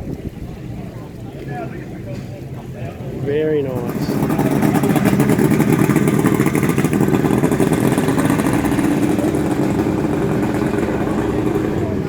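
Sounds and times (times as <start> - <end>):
motorcycle engine running: 3.1 - 12.0.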